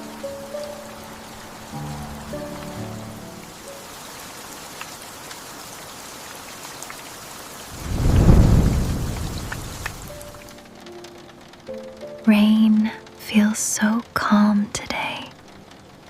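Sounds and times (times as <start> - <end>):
steady rain falling: 0.0 - 16.0
water drips: 1.7 - 11.8
thunder rumbling: 7.6 - 10.6.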